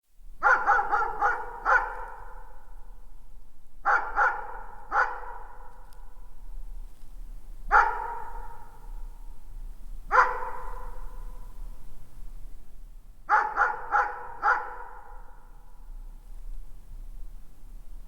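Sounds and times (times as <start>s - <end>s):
distant dog barking: 0.4s - 2.7s, 3.8s - 5.8s, 7.7s - 8.9s, 10.1s - 11.5s, 13.3s - 15.6s.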